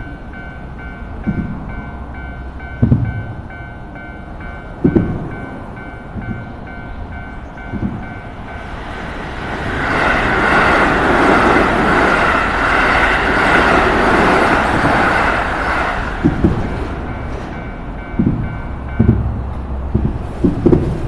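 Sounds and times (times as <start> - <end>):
crossing warning bell ringing: 0.0 - 20.3
train wheels on rails: 0.0 - 21.0
low thumps: 2.8 - 3.4, 4.8 - 5.5, 16.2 - 21.0.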